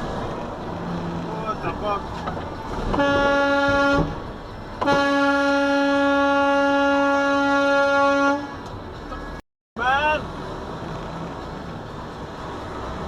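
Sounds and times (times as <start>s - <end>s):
vehicle horn blasts: 2.9s - 4.2s, 4.8s - 8.6s.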